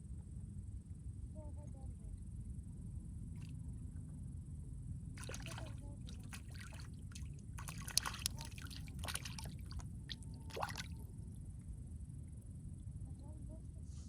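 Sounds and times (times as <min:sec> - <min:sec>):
water splashing and dripping: 0:05.2 - 0:11.0.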